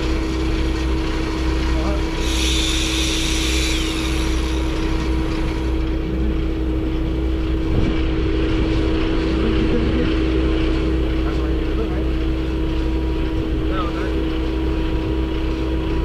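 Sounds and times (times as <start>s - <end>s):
engine and road drone: 0.0s - 16.0s
brief hiss: 2.2s - 4.7s.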